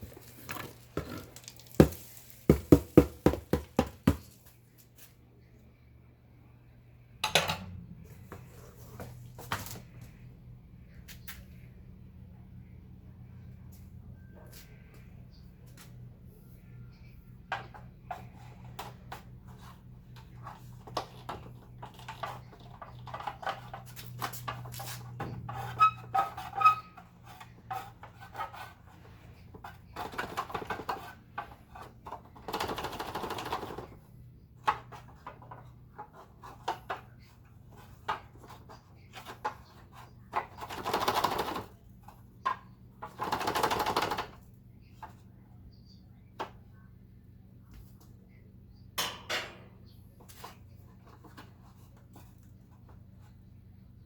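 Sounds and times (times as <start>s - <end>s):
plastic scraping: 0.0s - 4.4s.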